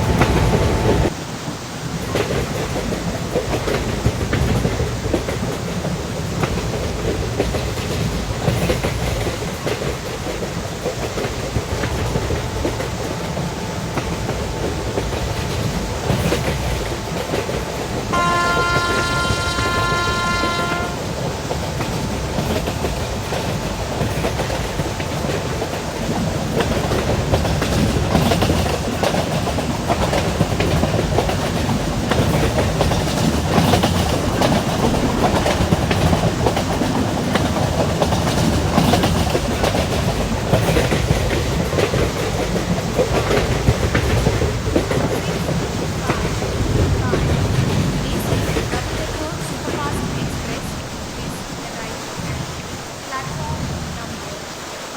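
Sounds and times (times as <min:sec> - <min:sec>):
train rumbling: 0:00.0 - 0:54.9
wheels clattering over rail joints: 0:00.0 - 0:54.9
locomotive horn: 0:12.4 - 0:21.5.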